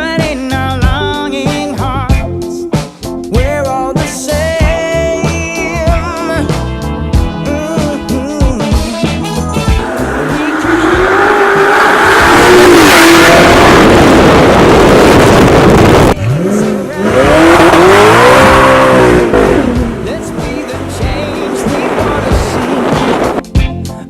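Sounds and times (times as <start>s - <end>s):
car exhaust accelerating hard: 9.5s - 23.4s.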